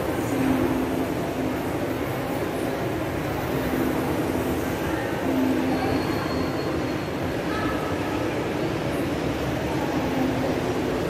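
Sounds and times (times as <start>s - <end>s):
train rumble: 0.0s - 11.0s
high wheel squeal: 5.8s - 7.3s.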